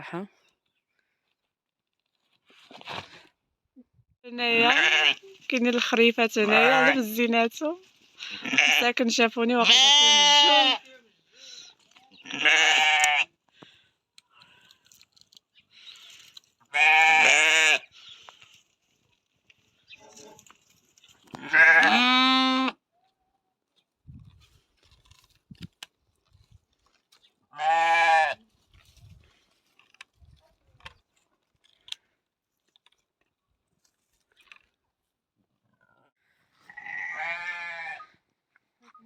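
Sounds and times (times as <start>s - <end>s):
lambs bleating: 4.5s - 5.2s, 6.4s - 7.1s, 8.3s - 8.8s, 9.6s - 10.9s, 12.2s - 13.3s, 16.7s - 17.9s, 21.4s - 22.8s, 27.5s - 28.4s, 36.7s - 38.1s.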